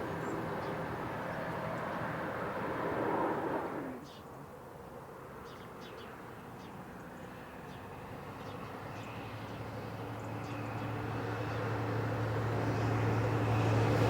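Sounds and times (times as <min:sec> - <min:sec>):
train approaching: 0:00.0 - 0:04.0
low engine hum: 0:00.0 - 0:04.3, 0:07.0 - 0:14.0
birds chirping: 0:00.0 - 0:04.5.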